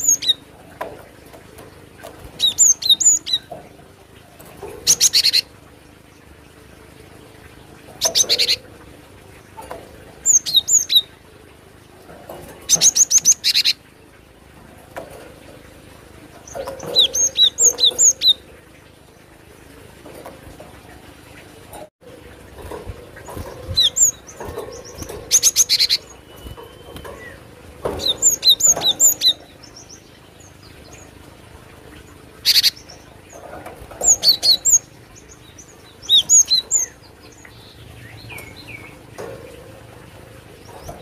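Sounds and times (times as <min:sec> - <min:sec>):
bird harsh rattling calls: 0:01.9 - 0:03.6, 0:04.5 - 0:05.5, 0:07.9 - 0:08.7, 0:12.3 - 0:13.9, 0:16.3 - 0:18.8, 0:22.5 - 0:31.1, 0:32.4 - 0:39.6.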